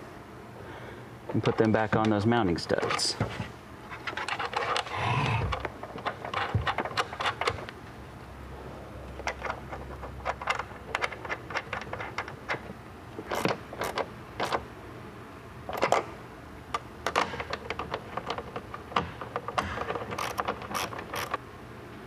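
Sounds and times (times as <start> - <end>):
ratchet clicking: 19.8 - 21.4.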